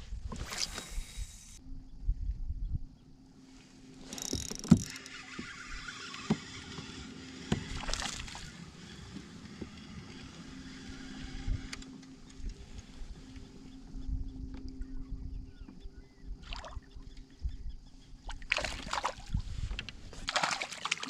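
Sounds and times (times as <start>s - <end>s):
faint steady hum: 6.1s - 20.3s.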